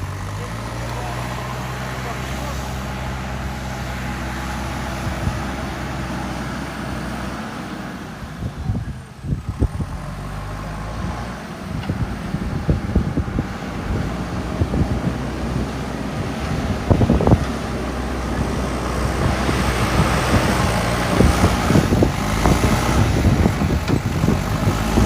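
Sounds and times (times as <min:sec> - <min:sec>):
diesel engine running: 0:00.0 - 0:25.0
low thumps and rumbles: 0:08.4 - 0:25.0.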